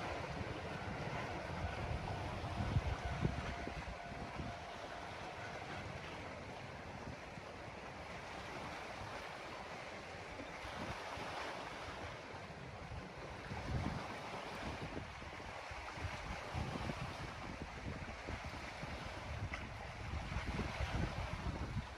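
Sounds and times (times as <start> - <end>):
steady rushing noise: 0.0 - 8.0
wind buffeting microphone: 0.0 - 21.9.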